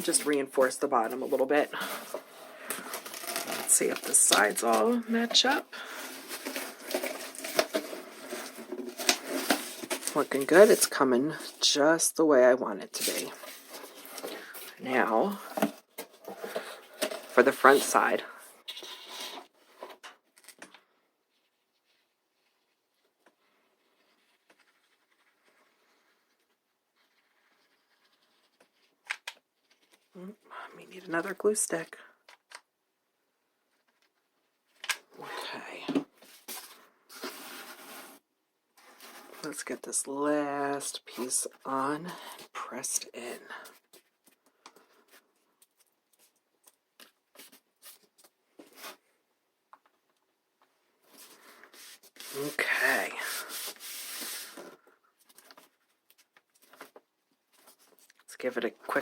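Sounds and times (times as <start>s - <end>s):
cardboard scratching and rustling: 1.0s - 11.6s, 36.2s - 38.2s.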